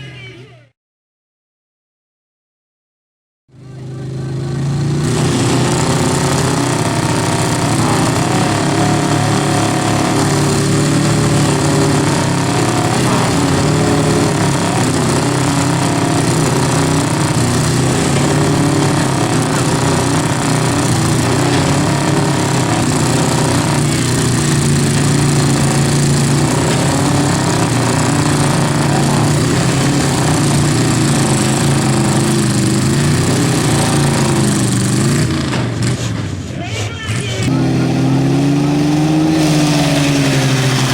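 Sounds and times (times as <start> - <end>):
truck engines revving hard: 3.5 - 40.9.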